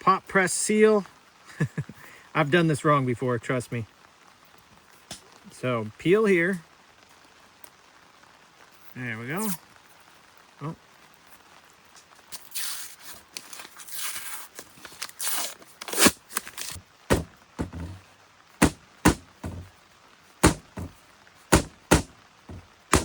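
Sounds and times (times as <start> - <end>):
paper label rustling: 12.3 - 18.0
sharp knocks on cardboard tube: 17.1 - 18.0, 18.6 - 19.7, 20.4 - 23.0.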